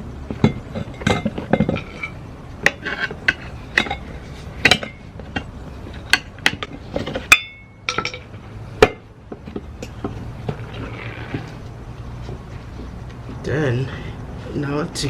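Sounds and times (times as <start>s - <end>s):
metal tool clinking on wheel rim: 0.4s - 9.0s.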